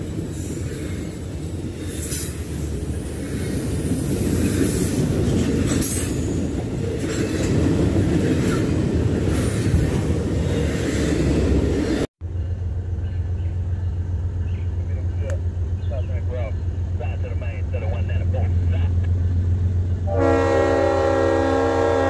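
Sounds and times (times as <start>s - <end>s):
high wheel squeals: 0.0s - 5.0s
train wheels rumbling on rail: 0.0s - 22.0s.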